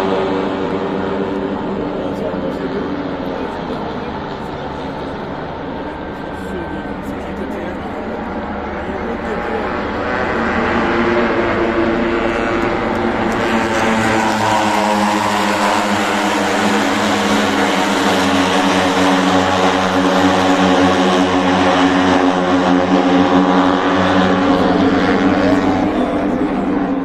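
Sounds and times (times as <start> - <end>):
racing motorcycles at high revs: 9.7 - 27.0.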